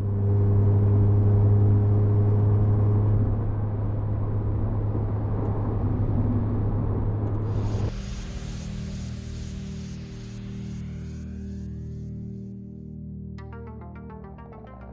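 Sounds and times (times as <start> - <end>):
car engine exhaust drone: 7.3 - 12.4.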